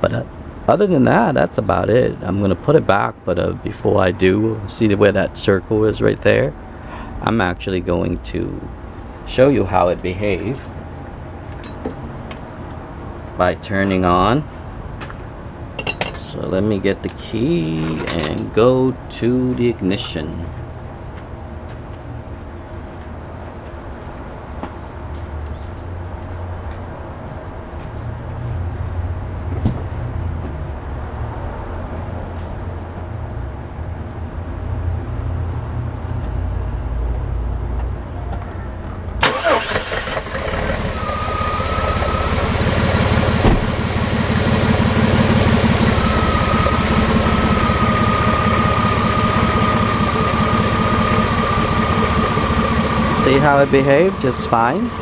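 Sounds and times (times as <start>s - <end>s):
engine cranking and starting: 39.2s - 55.0s
engine idling: 39.2s - 55.0s.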